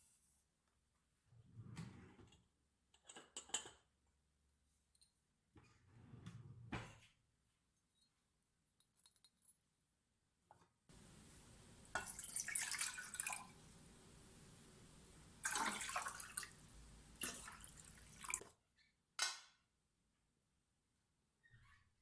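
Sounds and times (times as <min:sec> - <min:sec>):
water splashing: 0:11.0 - 0:18.5.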